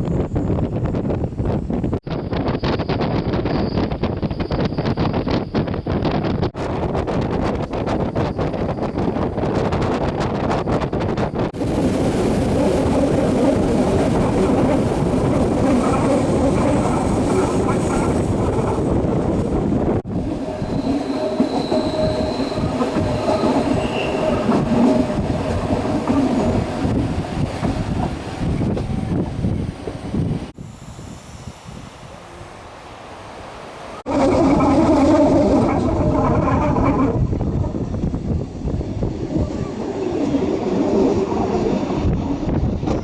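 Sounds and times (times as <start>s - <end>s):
train rumbling on rails: 0.0s - 43.0s
faint high wheel squeal: 20.5s - 25.1s.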